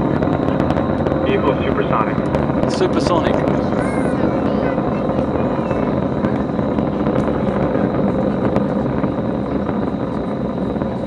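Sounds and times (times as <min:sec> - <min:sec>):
distant rocket engines roaring: 0:00.0 - 0:11.0
sharp crackles: 0:00.0 - 0:11.0.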